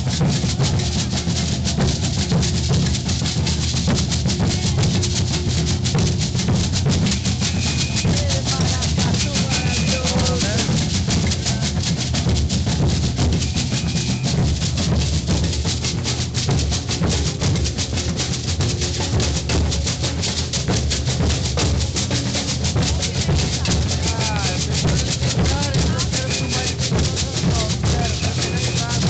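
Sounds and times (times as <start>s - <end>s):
clacking percussion strokes: 0.0s - 29.0s
deep bass drums: 0.0s - 29.0s
shakers: 0.0s - 29.0s.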